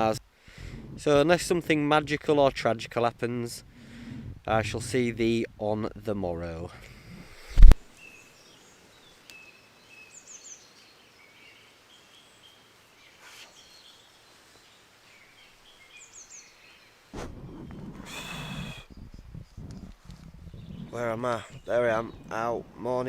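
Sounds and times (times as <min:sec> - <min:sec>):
birds chirping and trilling: 0:07.9 - 0:23.0.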